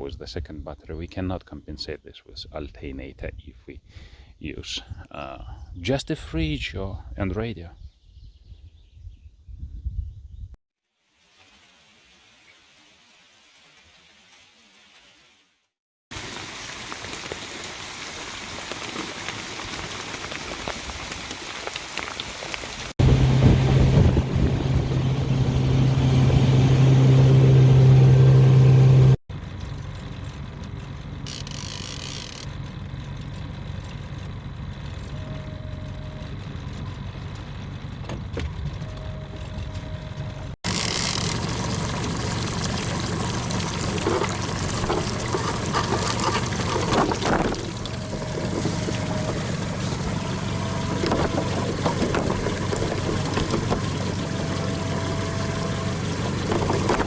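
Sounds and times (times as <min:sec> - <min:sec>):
water noise: 0:16.1 - 0:29.2, 0:38.9 - 0:57.0
outboard motor running: 0:23.0 - 0:57.0.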